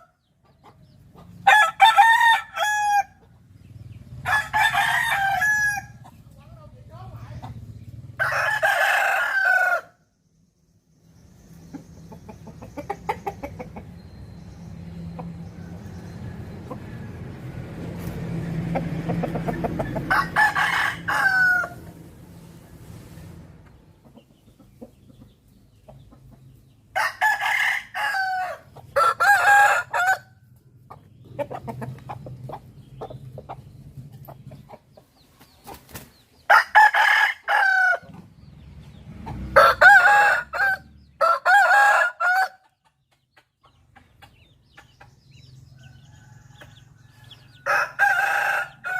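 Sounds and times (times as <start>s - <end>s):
roosters crowing: 0.0s - 0.4s, 1.0s - 10.2s, 12.1s - 23.5s, 26.4s - 30.7s, 36.4s - 42.8s, 45.4s - 48.9s
quiet farmyard sounds: 0.0s - 48.9s.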